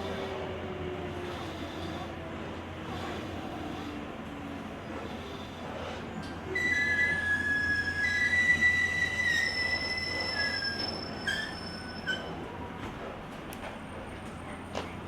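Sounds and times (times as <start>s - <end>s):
low rumble of running train: 0.0s - 15.0s
train wheels squealing: 6.2s - 12.6s.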